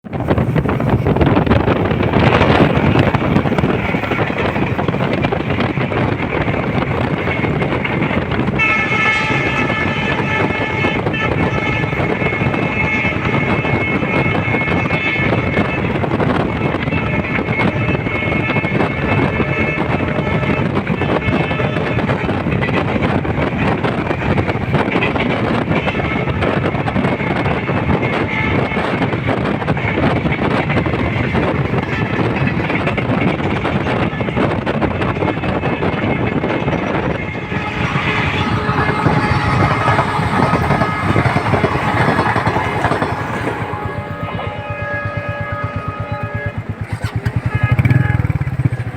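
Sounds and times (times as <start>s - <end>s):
train rumbling: 0.0s - 48.9s
wind buffeting microphone: 0.0s - 48.9s
wheels clattering on rails: 0.1s - 48.9s
high-pitched multi-note tone: 36.4s - 48.9s
faint high squeal: 36.7s - 48.1s.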